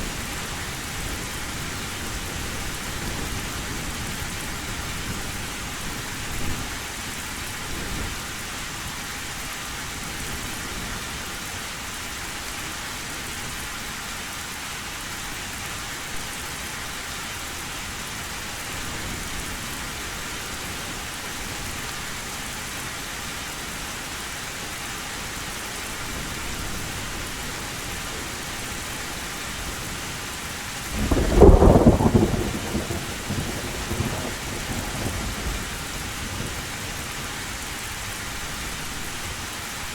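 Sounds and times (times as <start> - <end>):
heavy rain on a tin roof: 0.0 - 39.9
rumbling thunderclap: 30.9 - 36.6.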